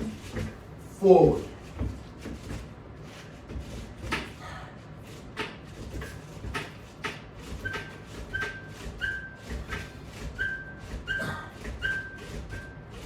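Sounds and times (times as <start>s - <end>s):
short high squeak: 7.6s - 9.4s, 10.4s - 12.8s.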